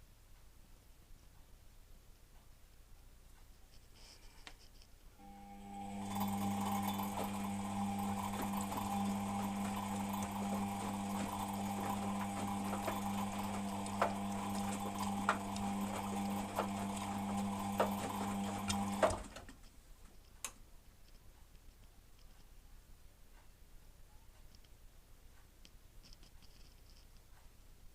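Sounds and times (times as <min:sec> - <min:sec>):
washing machine motor hum: 0:05.2 - 0:19.7
drum grinding noise: 0:05.6 - 0:19.4.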